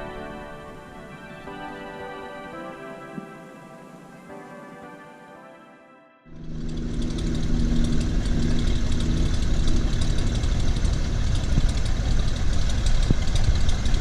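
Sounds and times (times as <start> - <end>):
engine low rumble: 6.3 - 14.0.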